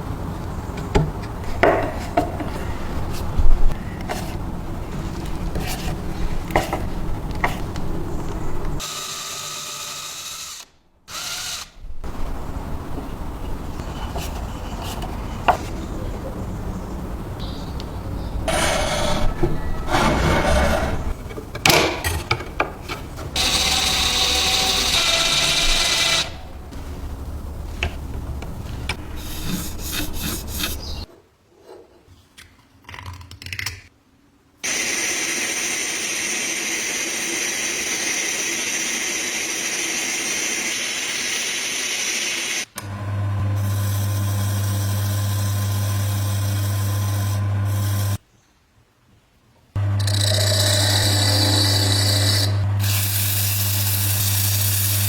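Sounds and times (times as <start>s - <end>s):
power tools working: 3.7s - 31.0s, 34.6s - 48.2s, 49.8s - 55.0s.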